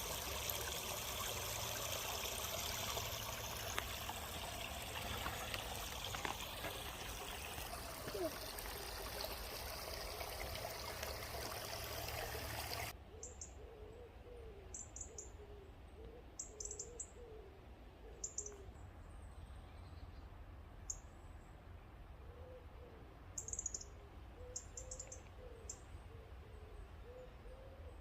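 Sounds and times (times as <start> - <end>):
running water: 0.0 - 12.9.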